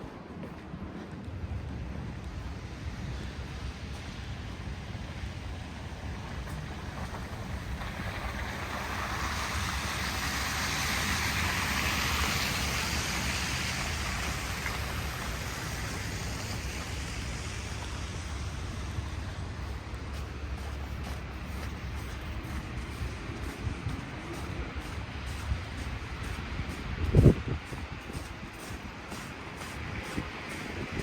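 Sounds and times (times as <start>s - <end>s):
low rumble of city traffic: 0.0s - 31.0s
tyres hissing on snowy street: 0.0s - 31.0s.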